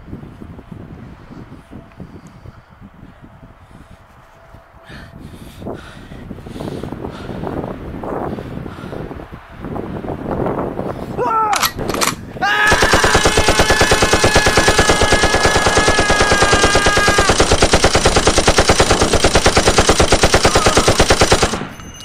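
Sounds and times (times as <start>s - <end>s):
automatic gunfire: 12.7s - 21.8s.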